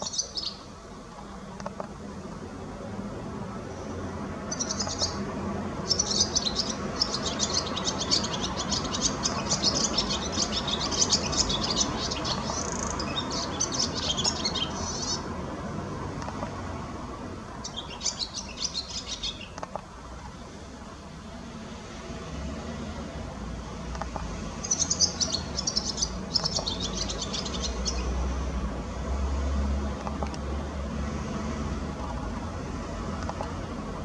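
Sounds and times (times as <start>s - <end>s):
small birds chirping: 0.0s - 0.8s, 4.3s - 15.4s, 17.4s - 19.9s, 24.0s - 28.7s.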